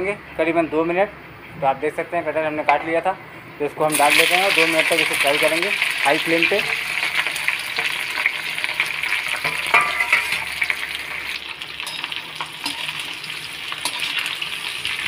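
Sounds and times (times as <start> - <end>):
food sizzling in hot oil: 3.9 - 15.0
metallic clank: 9.4 - 10.5.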